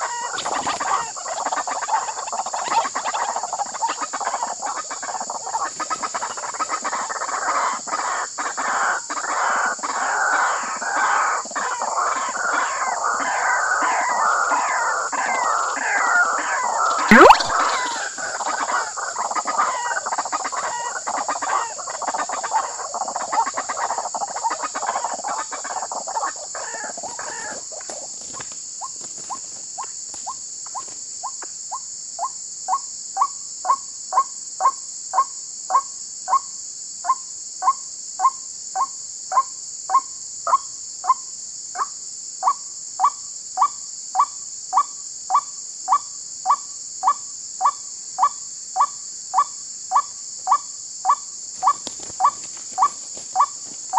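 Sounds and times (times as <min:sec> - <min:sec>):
harsh croaking chorus: 0:00.0 - 0:28.0
waterhen calling: 0:00.0 - 0:28.0.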